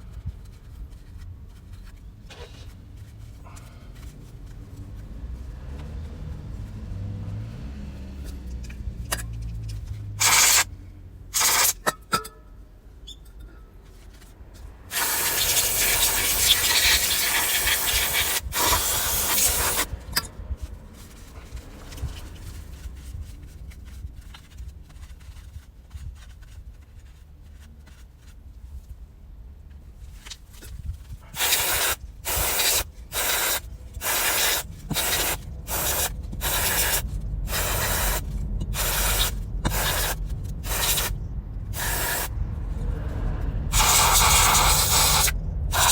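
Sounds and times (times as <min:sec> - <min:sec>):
pressurised spray hissing: 0:10.2 - 0:10.7, 0:11.4 - 0:11.8, 0:14.9 - 0:19.9, 0:31.4 - 0:41.2, 0:41.8 - 0:42.3, 0:43.7 - 0:45.9.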